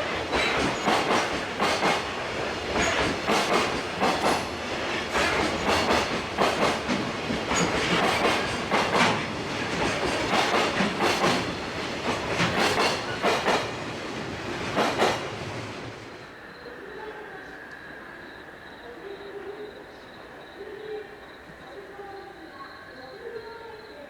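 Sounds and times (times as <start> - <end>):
train wheels clattering over rail joints: 0.0 - 16.0.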